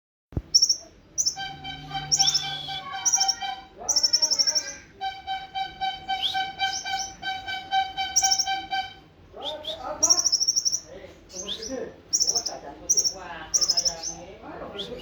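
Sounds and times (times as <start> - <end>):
bird chirping: 0.4 - 15.0
pulsing tone: 1.3 - 3.8, 5.0 - 9.0.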